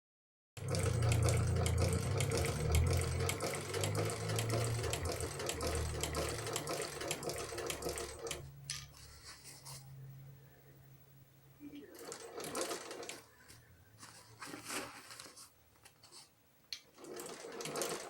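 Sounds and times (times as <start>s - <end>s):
shoe repair machine running: 0.6s - 8.4s.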